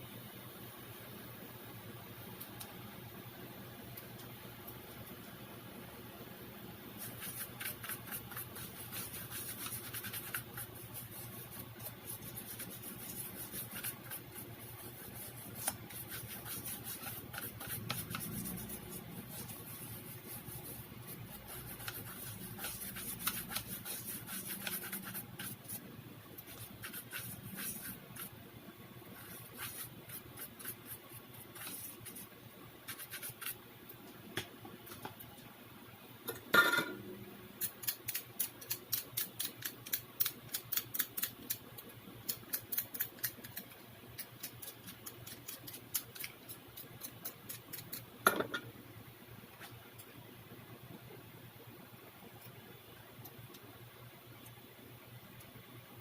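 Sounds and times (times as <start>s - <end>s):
faint steady hum: 0.0s - 56.0s
scratching and rubbing strokes: 7.0s - 25.8s, 26.4s - 28.4s, 29.1s - 33.6s.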